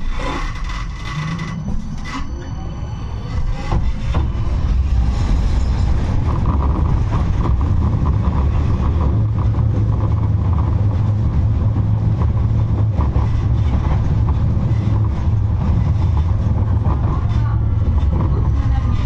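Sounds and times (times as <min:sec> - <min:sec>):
tram rumbling on rails: 0:00.0 - 0:19.0
mid-pitched hum: 0:04.6 - 0:19.0.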